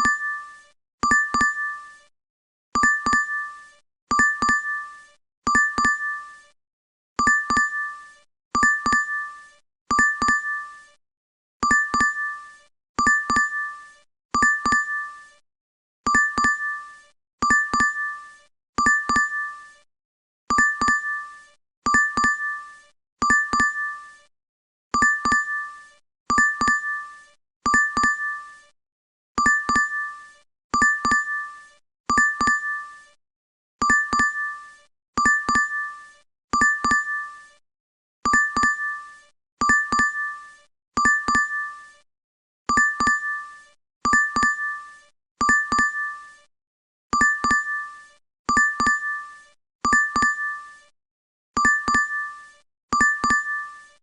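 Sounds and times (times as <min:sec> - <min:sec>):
two-tone notification chime: 0:45.4 - 0:46.1, 0:47.2 - 0:47.8, 0:48.5 - 0:49.2, 0:51.6 - 0:52.2, 0:53.0 - 0:53.9.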